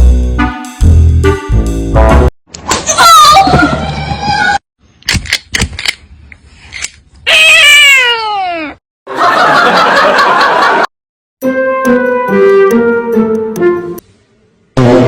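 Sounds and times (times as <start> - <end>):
laughter: 9.1 - 10.9.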